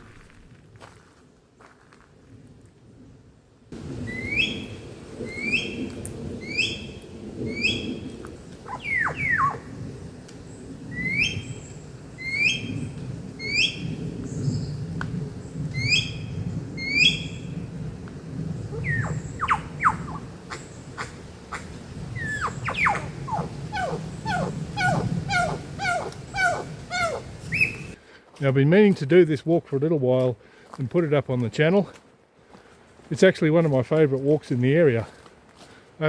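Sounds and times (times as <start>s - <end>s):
steady low rumble: 3.8s - 28.0s
bird short rising calls: 4.0s - 5.8s, 6.4s - 9.7s, 10.9s - 11.6s, 12.2s - 13.9s, 18.6s - 28.0s
quick falling bird whistles: 4.1s - 4.7s.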